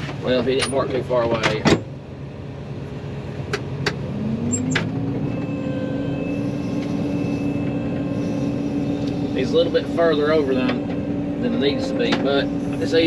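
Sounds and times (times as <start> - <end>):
combine engine running: 2.6 - 13.0.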